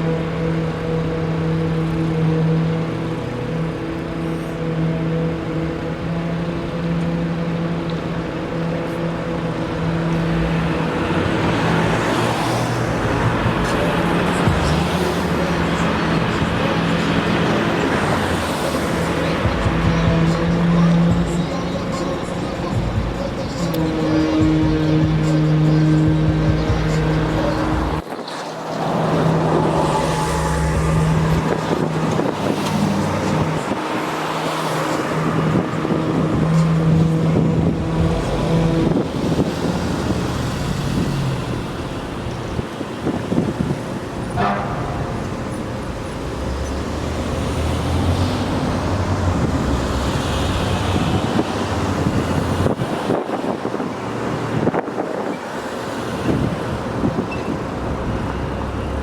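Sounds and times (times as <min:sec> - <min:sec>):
high-pitched squeal: 0:00.0 - 0:42.7
traffic and engine noise: 0:00.0 - 0:59.0.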